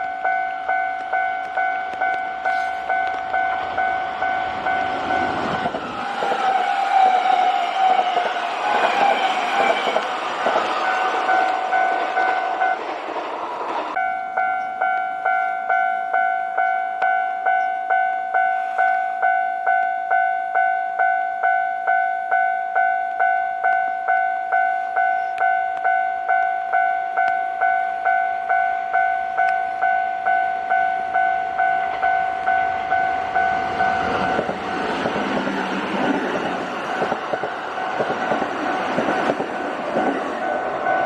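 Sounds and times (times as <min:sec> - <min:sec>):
level crossing bell ringing: 0:00.1 - 0:05.8
train wheels rushing on rails: 0:01.0 - 0:14.0, 0:31.8 - 0:41.0.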